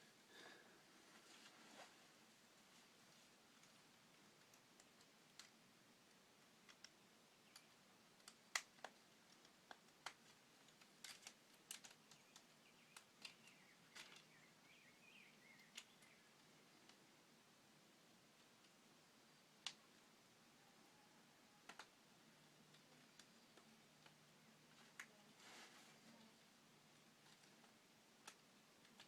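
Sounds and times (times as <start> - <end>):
plastic pieces clicking and knocking: 6.6 - 14.3.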